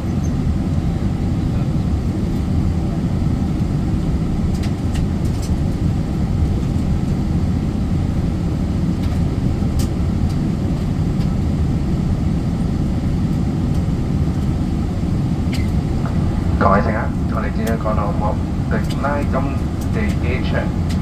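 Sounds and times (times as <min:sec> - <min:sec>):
airliner cabin rumble: 0:00.0 - 0:21.0
faint clicks: 0:17.3 - 0:20.3.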